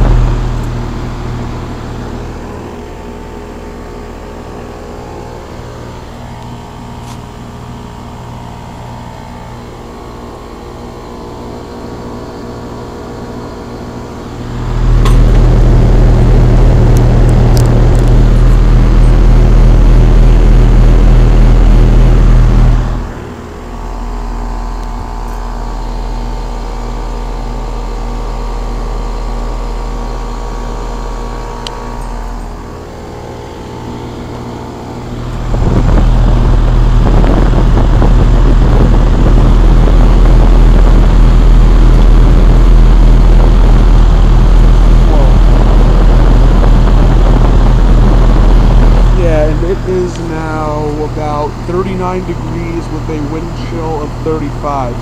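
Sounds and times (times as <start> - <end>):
heat pump humming: 0.0 - 55.0
wind gusts on microphone: 35.4 - 40.1.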